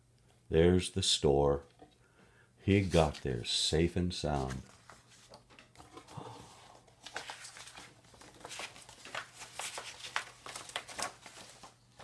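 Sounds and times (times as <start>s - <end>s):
paper pages rustling: 2.7s - 3.6s, 4.2s - 6.1s, 6.8s - 12.0s.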